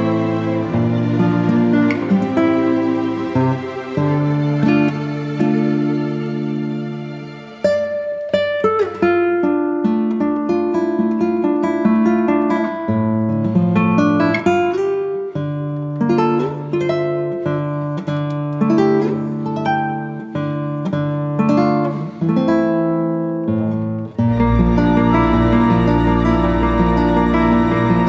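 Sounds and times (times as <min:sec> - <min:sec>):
acoustic guitar melody: 0:00.0 - 0:28.0
sustained bass notes: 0:24.3 - 0:28.0.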